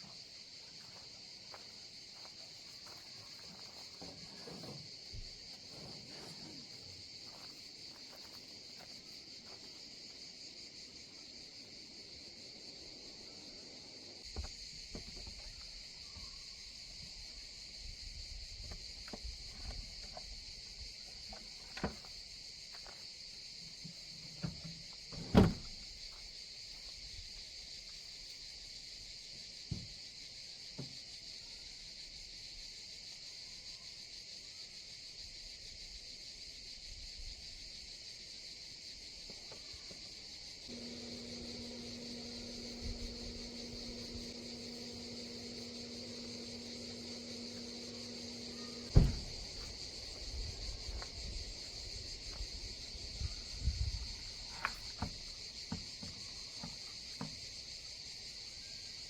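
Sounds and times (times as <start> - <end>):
insects singing: 39.3 - 59.0.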